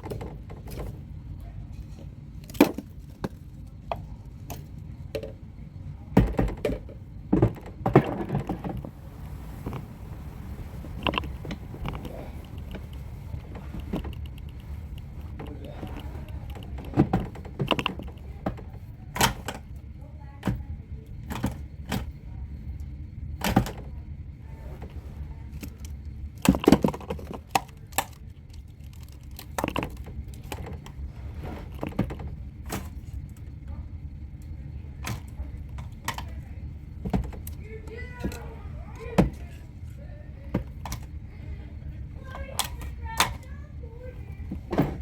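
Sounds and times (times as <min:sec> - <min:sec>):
steady low hum: 0:00.0 - 0:45.0
toy truck parts clicking and knocking: 0:10.9 - 0:18.6, 0:25.6 - 0:31.0.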